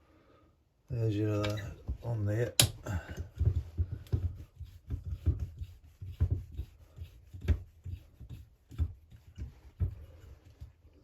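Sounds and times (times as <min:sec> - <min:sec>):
hand tool clicks and knocks: 0:02.6 - 0:03.3.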